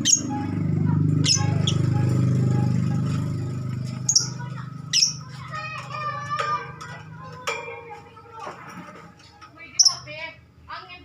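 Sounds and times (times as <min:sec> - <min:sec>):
pet bird chirping and warbling: 0:00.0 - 0:06.0, 0:09.2 - 0:10.2.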